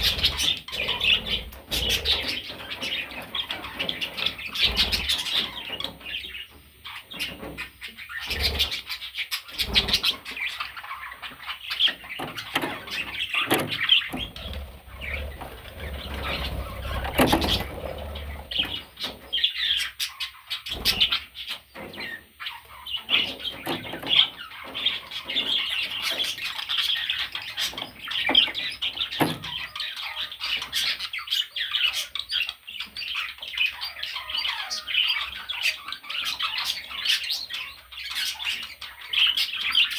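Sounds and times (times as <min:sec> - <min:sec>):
budgerigars chattering: 0:00.0 - 0:39.9
knocks and thumps: 0:12.2 - 0:19.3.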